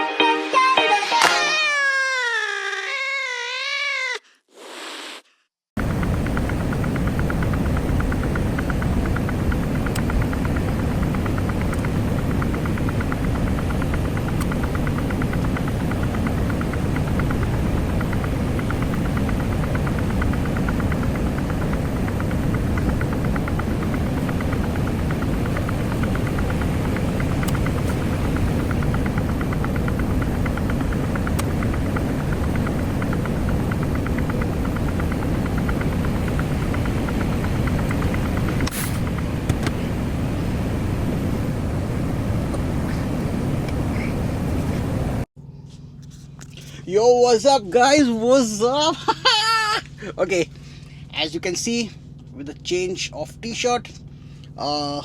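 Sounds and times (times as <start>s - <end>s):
road noise rumble: 5.8s - 55.0s
truck engine running: 5.8s - 55.0s.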